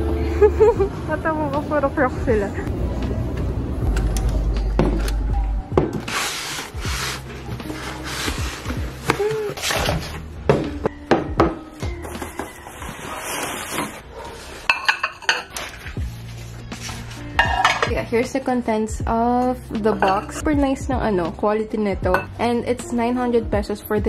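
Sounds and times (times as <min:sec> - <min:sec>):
dishes and utensils clinking: 0:14.6 - 0:16.0, 0:17.3 - 0:18.1, 0:19.9 - 0:20.4, 0:22.1 - 0:22.4.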